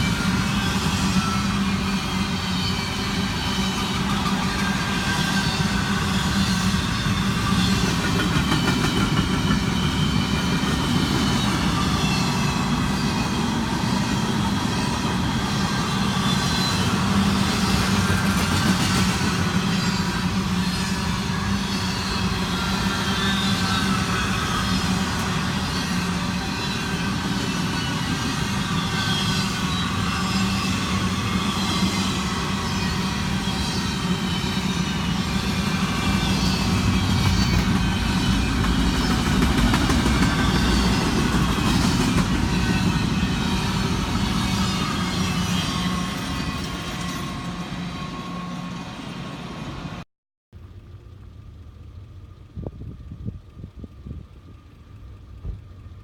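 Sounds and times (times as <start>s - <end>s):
train wheels rumbling on rail: 0.0s - 50.0s, 51.0s - 56.0s.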